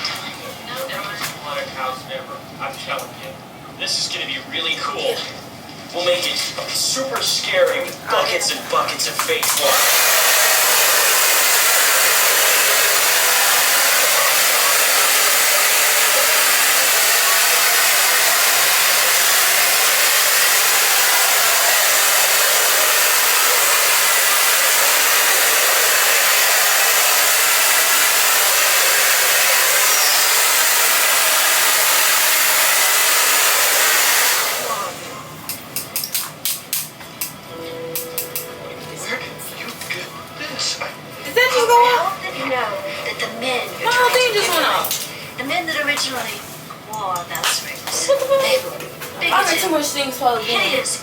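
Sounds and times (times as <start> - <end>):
hair dryer blowing: 9.2 - 35.6.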